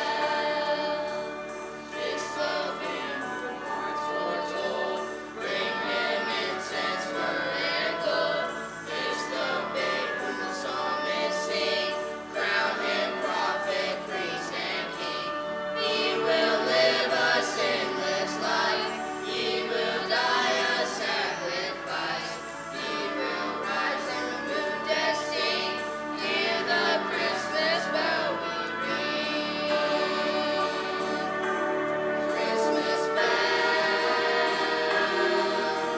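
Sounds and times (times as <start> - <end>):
choir singing: 0.0 - 35.9
musical accompaniment: 0.0 - 35.9.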